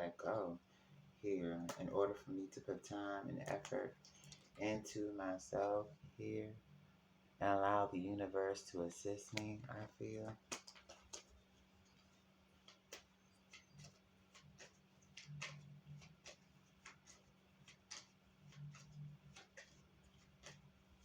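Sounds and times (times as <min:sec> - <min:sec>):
cards clicking: 0:09.3 - 0:11.4, 0:12.6 - 0:21.0.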